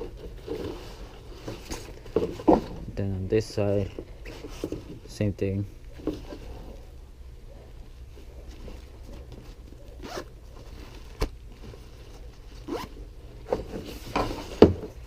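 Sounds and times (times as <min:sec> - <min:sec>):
zippers being pulled: 0:10.0 - 0:11.2, 0:12.6 - 0:13.0.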